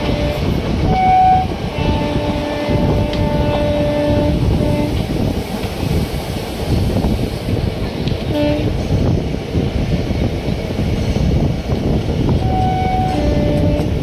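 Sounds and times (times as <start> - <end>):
train running rumble: 0.0 - 14.0
short horn tones: 12.5 - 14.0.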